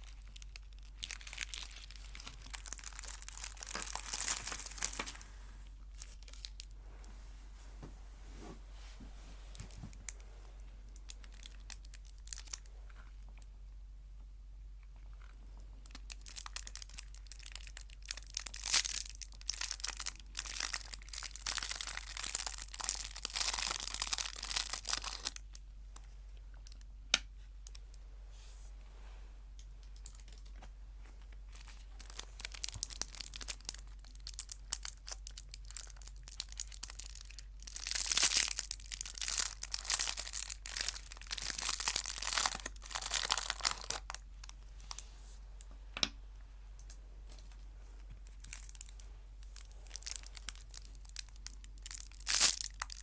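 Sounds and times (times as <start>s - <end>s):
chocolate wrapper crinkling: 0.0s - 6.8s, 10.9s - 13.5s, 14.9s - 25.6s, 31.3s - 45.0s, 48.0s - 53.0s.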